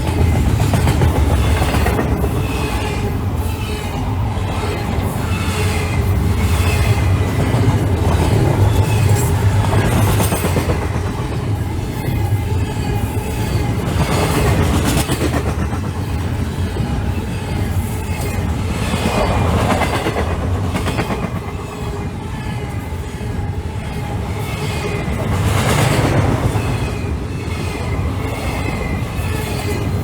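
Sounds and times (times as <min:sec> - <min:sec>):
train wheels clicking over rail joints: 0:00.0 - 0:02.8
freight train rumble: 0:00.0 - 0:30.0.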